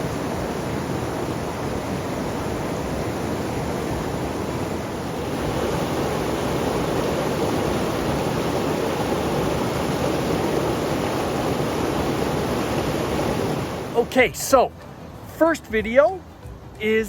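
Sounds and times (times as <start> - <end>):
waterfall roaring: 0.0 - 15.6.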